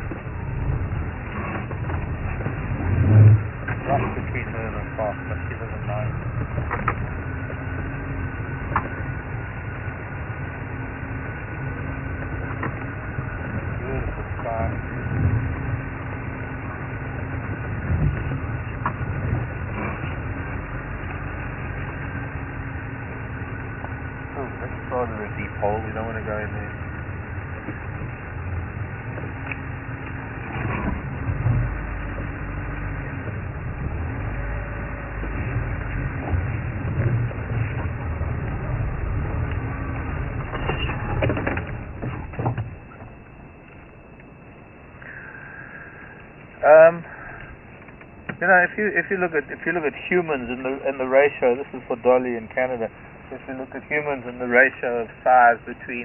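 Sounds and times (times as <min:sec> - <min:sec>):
vehicle engine rumbling: 0:00.0 - 0:56.0
vehicle bumps: 0:17.3 - 0:21.2, 0:27.4 - 0:43.3.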